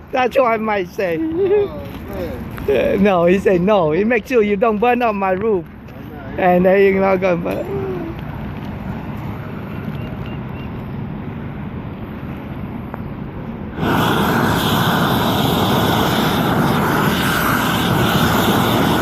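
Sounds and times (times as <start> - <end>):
propane torch rushing: 13.7 - 19.0.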